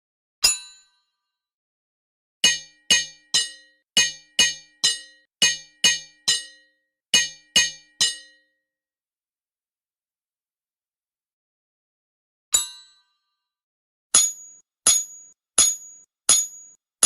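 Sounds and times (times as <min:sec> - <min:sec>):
hammer clanging on anvil: 0:02.4 - 0:08.4, 0:14.2 - 0:16.8.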